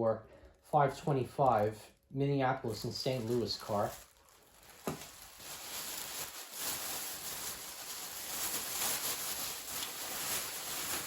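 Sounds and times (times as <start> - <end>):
bag rustling and crinkling: 2.7 - 11.0.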